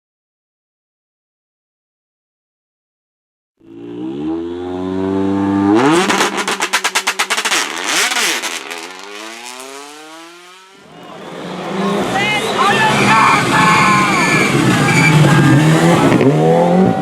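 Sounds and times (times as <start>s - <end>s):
rally car engine revving: 3.6s - 17.0s
exhaust bangs: 5.4s - 17.0s.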